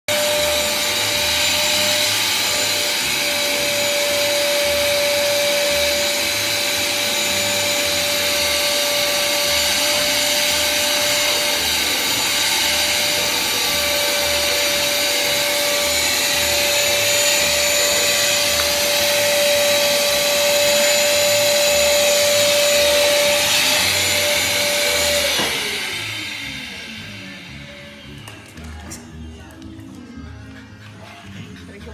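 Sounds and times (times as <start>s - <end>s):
vacuum cleaner running: 0.1s - 31.9s.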